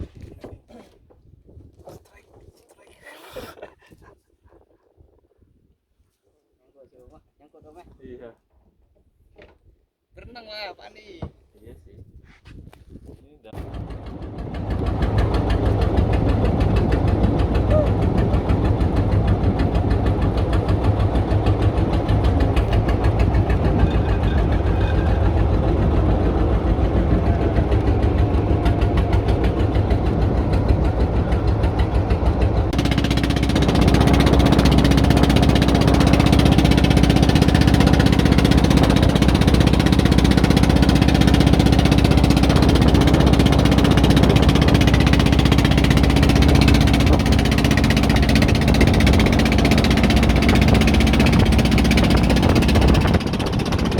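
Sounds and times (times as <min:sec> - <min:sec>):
boat engine knocking: 0:13.6 - 0:53.9.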